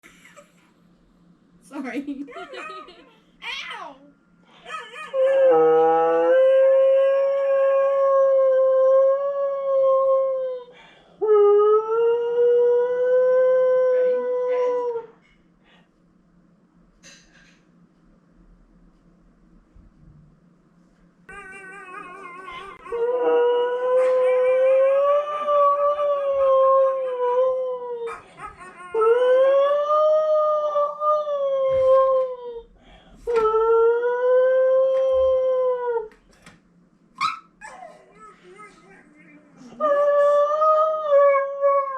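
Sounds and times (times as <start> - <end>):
husky howling: 4.7 - 10.6, 21.5 - 32.6.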